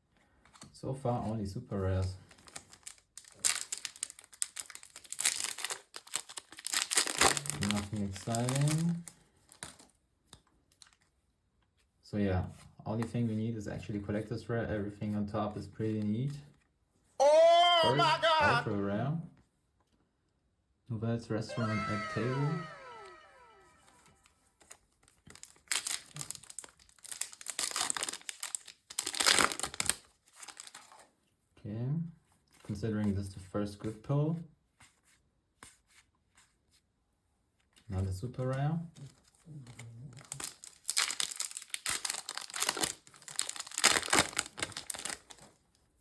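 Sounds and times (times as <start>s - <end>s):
foil wrapper crinkling and tearing: 2.2s - 9.9s, 24.6s - 31.0s, 39.0s - 45.7s.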